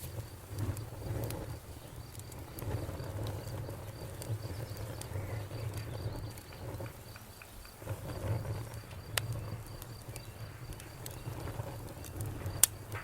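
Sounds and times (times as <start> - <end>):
campfire crackling: 0.0 - 13.0
sharp pop from fire: 0.0 - 13.0.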